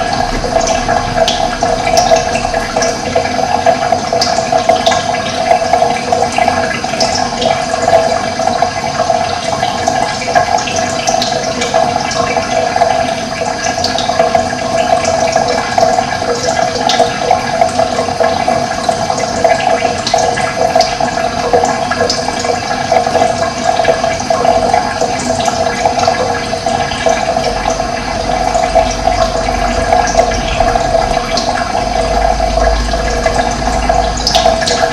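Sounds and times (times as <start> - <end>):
running water: 0.0 - 34.9.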